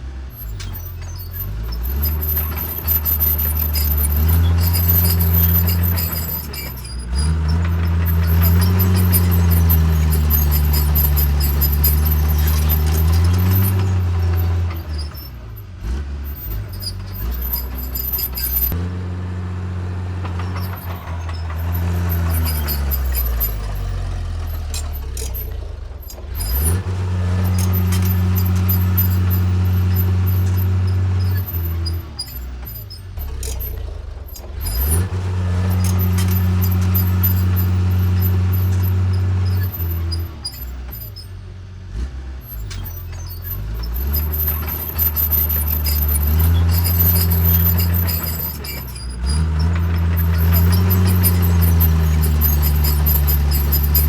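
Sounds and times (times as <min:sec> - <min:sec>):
bulldozer diesel engine: 0:00.0 - 0:54.0.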